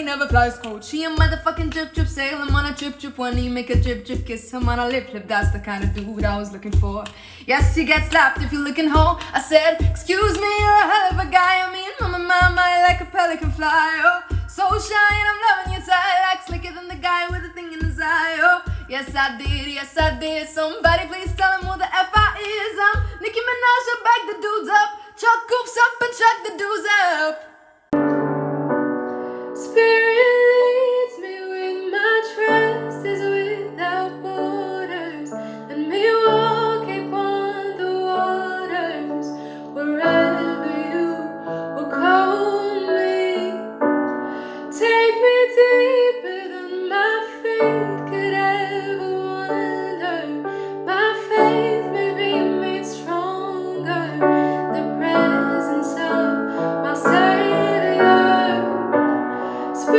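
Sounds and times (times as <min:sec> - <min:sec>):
woman singing: 0:00.0 - 0:27.8, 0:29.6 - 0:59.9
sustained piano chords: 0:28.0 - 0:31.0.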